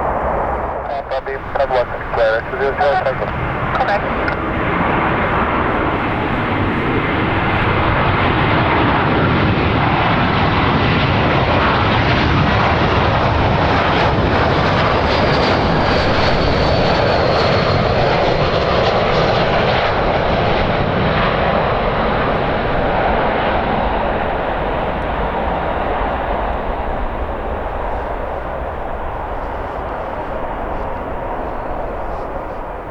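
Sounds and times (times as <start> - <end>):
high whine: 0.0 - 8.6
jet airliner engines: 0.0 - 32.9
wind rumble on microphone: 0.0 - 32.9.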